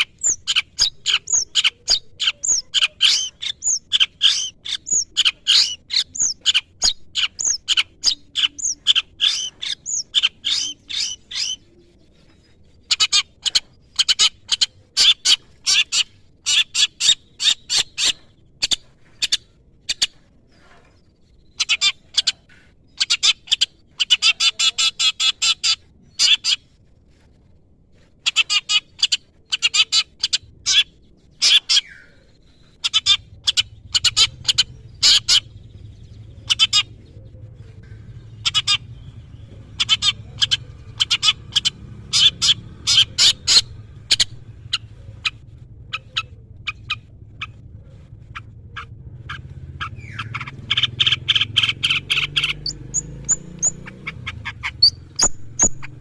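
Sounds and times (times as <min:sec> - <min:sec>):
low steady hum: 0:32.0 - 0:50.7.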